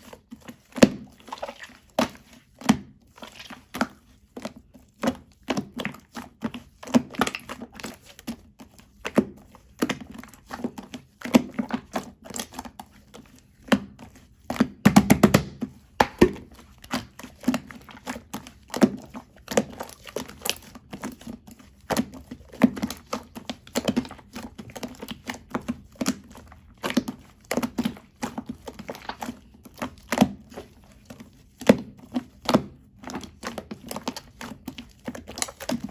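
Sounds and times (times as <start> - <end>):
slime squeezed with sticky pops: 14.6 - 19.0, 24.9 - 30.8.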